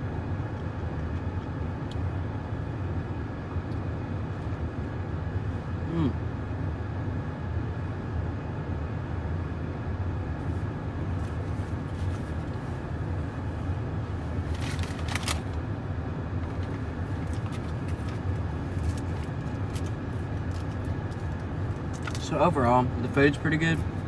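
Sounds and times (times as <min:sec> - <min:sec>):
car engine idling inside car: 0:00.0 - 0:24.0
short rustles or clicks: 0:14.5 - 0:15.6.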